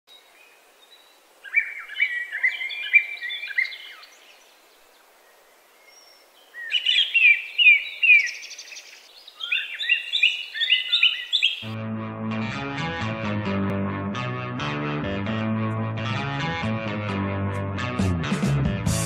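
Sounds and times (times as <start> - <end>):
songbird singing: 0.1 - 11.8.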